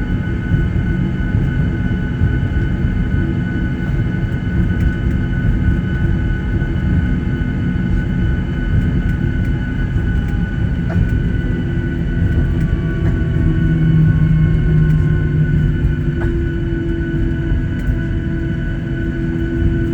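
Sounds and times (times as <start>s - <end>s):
aircraft cabin rumble: 0.0s - 19.9s
jet engines whining: 0.0s - 19.9s
low hum: 0.0s - 19.9s.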